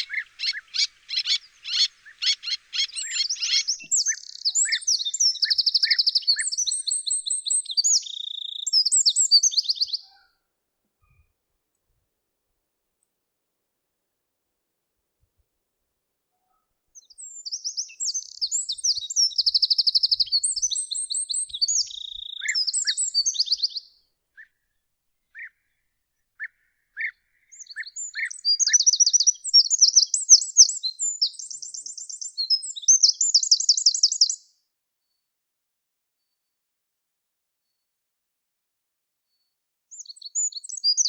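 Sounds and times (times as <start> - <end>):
songbird high fast trills: 0.0 - 7.2.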